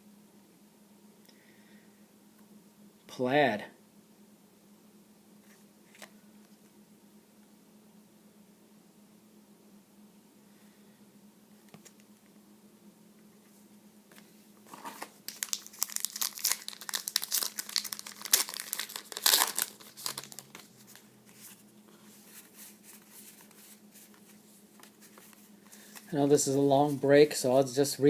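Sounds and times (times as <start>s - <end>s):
faint steady hum: 0.0s - 28.0s
wrapper crinkling as torn open: 14.8s - 21.0s.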